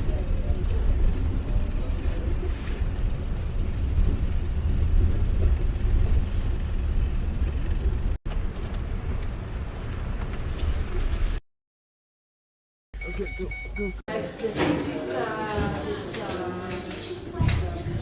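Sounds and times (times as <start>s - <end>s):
vehicle engine and road rumble: 0.0s - 11.4s.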